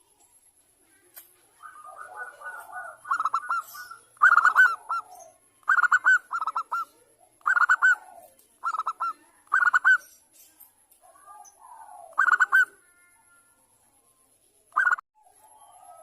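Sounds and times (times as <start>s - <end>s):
dove cooing: 1.5s - 10.1s, 11.0s - 13.2s, 14.8s - 16.0s.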